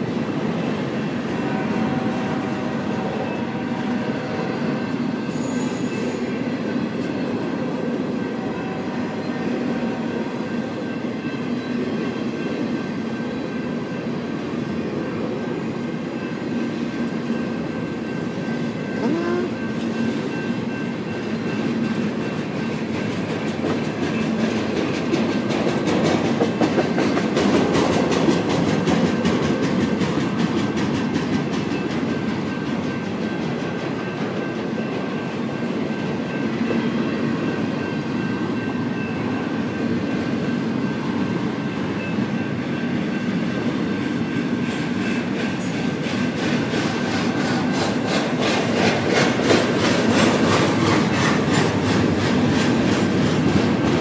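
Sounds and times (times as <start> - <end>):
train wheels rumbling on rail: 0.0 - 54.0
wheels clicking over rail joints: 21.6 - 35.6, 44.7 - 54.0.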